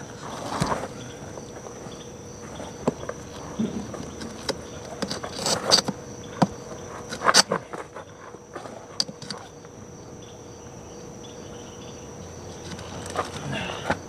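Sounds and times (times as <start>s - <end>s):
insects droning: 0.0s - 14.0s
scrapes and knocks on ground: 2.4s - 9.5s.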